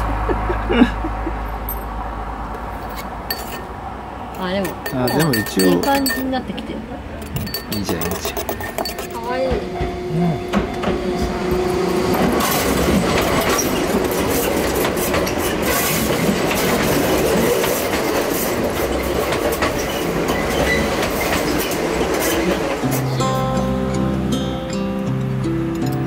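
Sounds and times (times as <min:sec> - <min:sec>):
train rumble: 0:00.0 - 0:23.3
wheels clacking over rail joints: 0:07.2 - 0:23.2.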